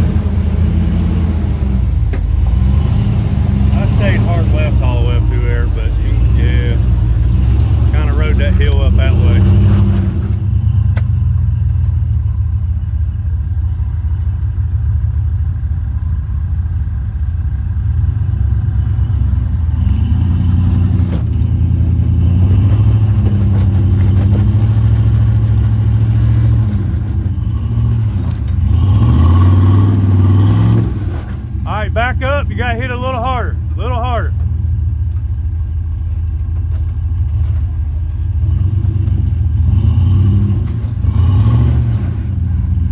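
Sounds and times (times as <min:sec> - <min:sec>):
truck engine revving: 0:00.0 - 0:11.8, 0:18.0 - 0:35.4, 0:38.2 - 0:42.9.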